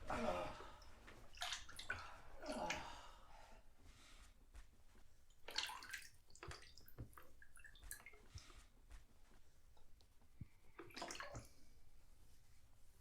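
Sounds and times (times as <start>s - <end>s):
water splashes: 0.0s - 3.0s, 5.5s - 8.2s, 10.8s - 11.6s
bathwater sloshing and dripping: 0.0s - 3.3s, 5.3s - 12.4s.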